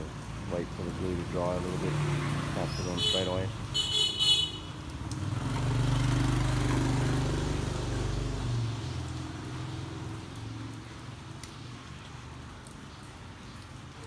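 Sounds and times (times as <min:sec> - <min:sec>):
vehicle engine passing: 0:00.1 - 0:03.8, 0:05.0 - 0:10.7.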